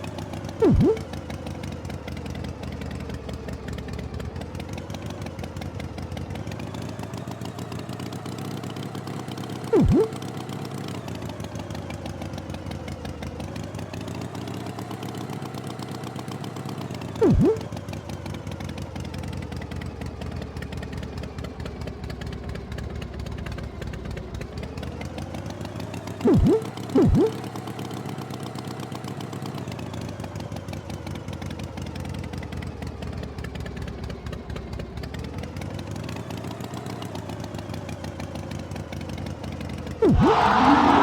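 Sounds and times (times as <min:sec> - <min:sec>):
loud swooping sounds: 0:00.6 - 0:01.0, 0:09.7 - 0:10.2, 0:17.2 - 0:17.6, 0:26.2 - 0:27.4, 0:40.0 - 0:41.0.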